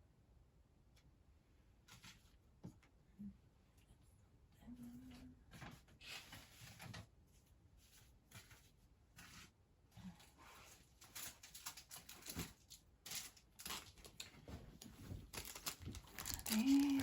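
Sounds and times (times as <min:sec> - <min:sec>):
paper envelopes rustling: 0:10.7 - 0:17.0.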